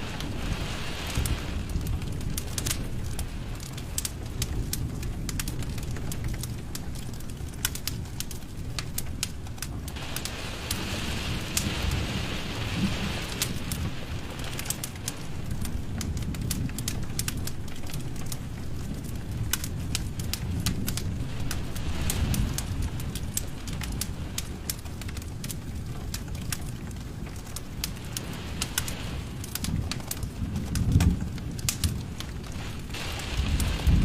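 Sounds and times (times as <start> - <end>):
fire hissing: 0.0 - 4.2, 9.6 - 16.5, 27.5 - 30.3, 32.4 - 34.0
fire crackling and popping: 0.0 - 34.0
fire rumbling: 0.0 - 34.0.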